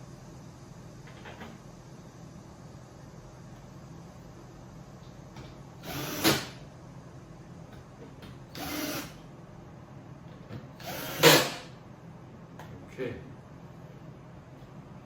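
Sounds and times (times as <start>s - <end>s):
drill driving screws: 5.8s - 6.6s, 8.5s - 9.2s, 10.8s - 11.7s.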